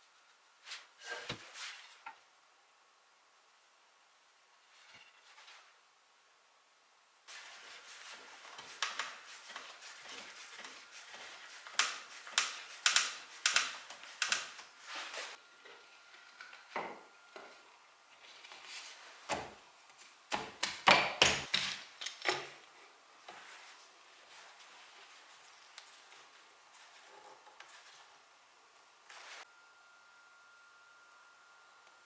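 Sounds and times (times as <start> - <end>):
tools and wooden parts clicking: 11.8 - 14.6.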